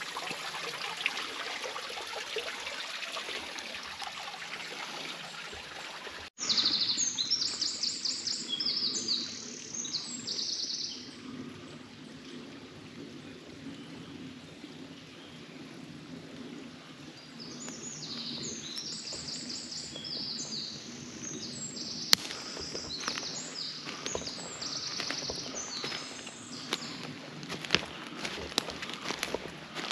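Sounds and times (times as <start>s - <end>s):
songbird singing: 6.4s - 29.9s.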